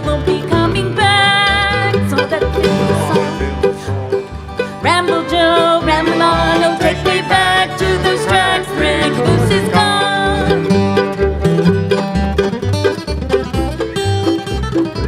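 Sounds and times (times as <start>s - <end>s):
banjo: 0.0s - 15.0s
bass line: 0.0s - 15.0s
bluegrass band playing: 0.0s - 15.0s.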